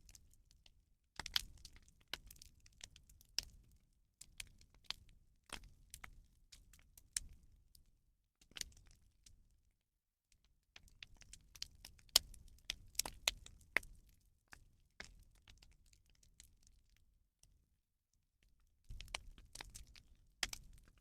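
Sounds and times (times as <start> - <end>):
bonfire crackling and popping: 1.2 - 2.5, 11.1 - 13.9, 18.9 - 20.9.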